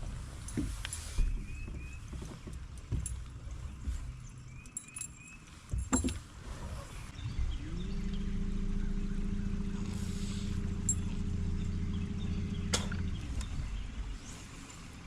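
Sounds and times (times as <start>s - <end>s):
boat motor humming: 5.5s - 15.0s.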